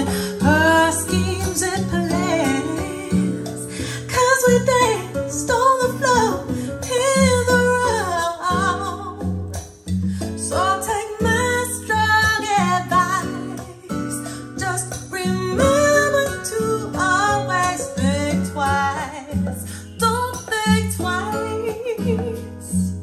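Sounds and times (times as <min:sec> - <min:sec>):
acoustic guitar music: 0:00.0 - 0:23.0
bass line: 0:15.3 - 0:16.8.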